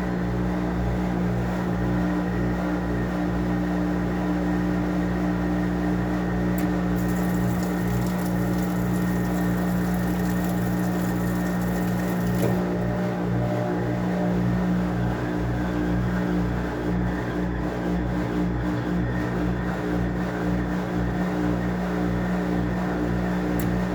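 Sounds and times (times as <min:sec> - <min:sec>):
washing machine motor hum: 0:05.6 - 0:14.9.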